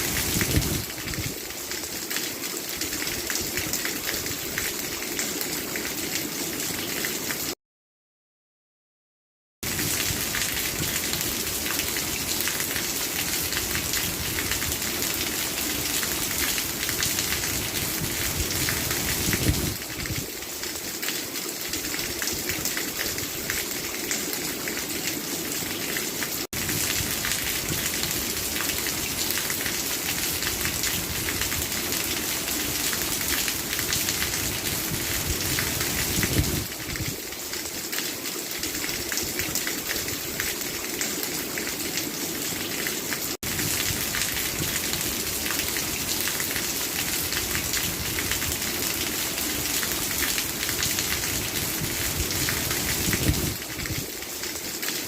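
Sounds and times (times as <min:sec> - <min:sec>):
heavy rainfall: 0:00.0 - 0:07.6, 0:09.6 - 0:55.0.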